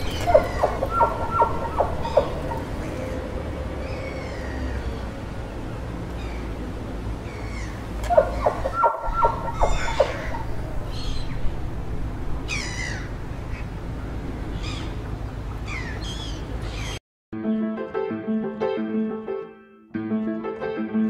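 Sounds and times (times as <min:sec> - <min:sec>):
piano music: 0:00.0 - 0:03.8, 0:17.3 - 0:21.0
wild birds calling and singing: 0:00.0 - 0:06.6, 0:07.2 - 0:11.6, 0:12.4 - 0:17.0.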